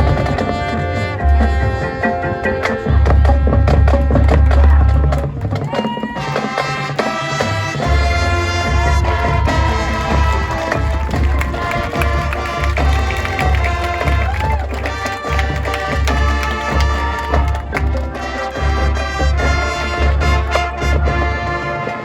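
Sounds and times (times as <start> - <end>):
brass and wind chords: 0.0 - 5.2, 6.2 - 22.0
drums: 0.0 - 22.0
deep bass line: 7.9 - 21.2.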